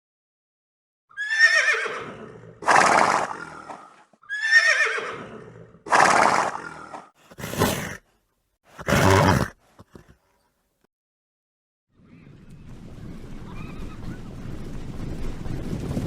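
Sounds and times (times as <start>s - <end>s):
horse whinnying: 1.1s - 8.0s, 8.7s - 10.2s
horse snorting breathy burst: 5.1s - 10.4s.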